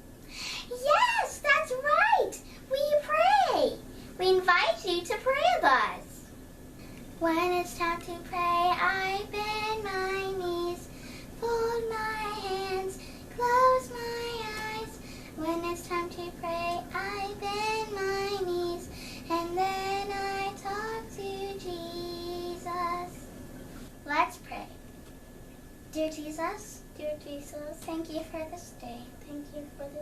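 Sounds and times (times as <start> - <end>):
faint low hum: 0.0 - 30.0
child singing: 7.2 - 23.2, 26.0 - 30.0.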